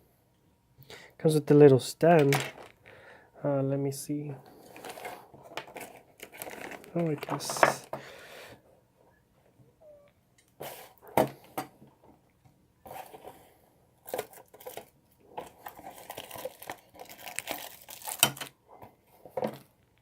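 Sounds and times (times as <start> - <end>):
wrapping rustling and crinkling: 4.5 - 7.9, 12.9 - 19.8.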